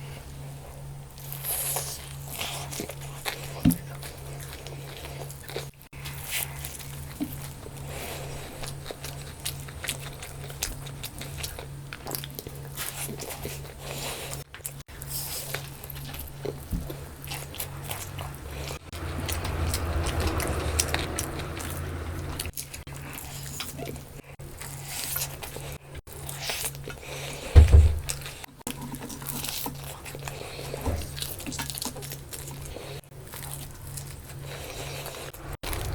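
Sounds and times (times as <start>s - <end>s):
person chewing food: 0.7s - 35.9s
steady low hum: 29.9s - 35.9s.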